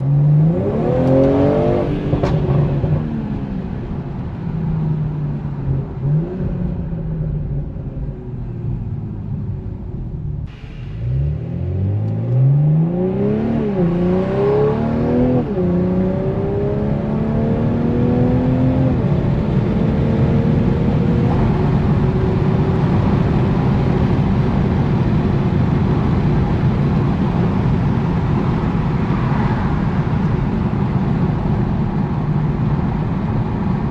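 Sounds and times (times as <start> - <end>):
car accelerating through gear shifts: 0.0 - 3.1, 11.0 - 32.7
car engine revving: 0.0 - 3.6, 10.8 - 33.9.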